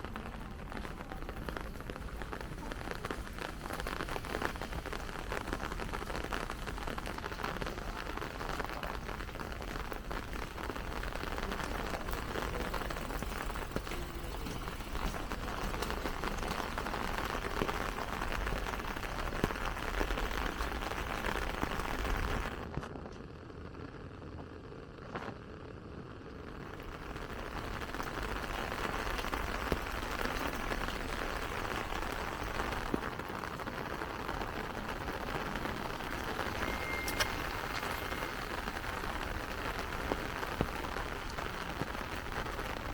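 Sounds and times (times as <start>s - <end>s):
rain pattering on umbrella: 0.0s - 42.9s.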